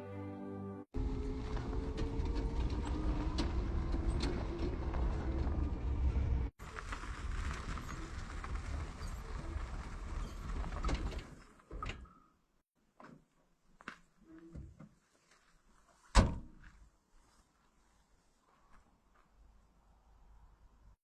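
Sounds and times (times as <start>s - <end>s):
vehicle running: 1.0s - 10.8s.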